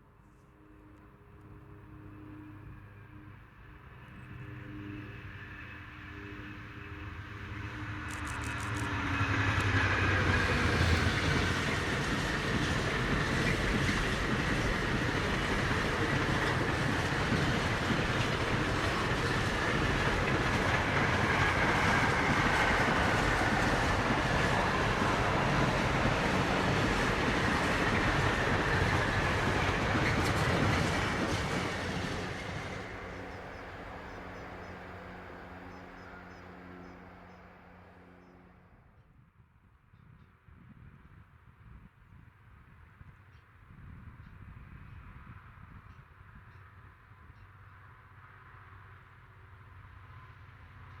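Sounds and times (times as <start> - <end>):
train wheels rushing on rail: 5.3 - 38.2.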